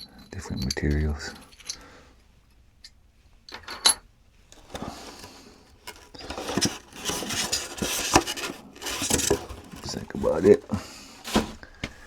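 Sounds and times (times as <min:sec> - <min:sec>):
packing rustling and scraping: 0:04.5 - 0:12.0.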